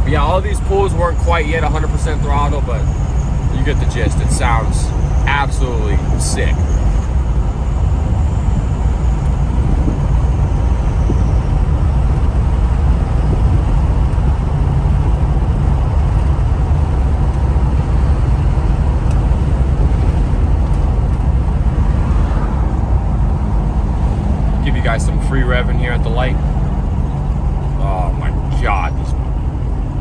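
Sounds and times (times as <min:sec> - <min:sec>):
diesel truck engine rumbling: 0:00.0 - 0:30.0.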